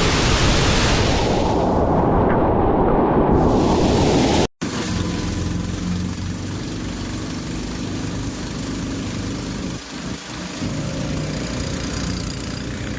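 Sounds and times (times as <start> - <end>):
engine running with low hum: 4.7 - 12.9.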